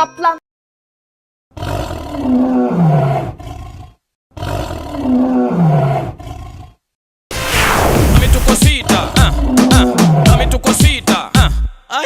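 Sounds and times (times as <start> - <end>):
tiger roaring: 1.5 - 6.8.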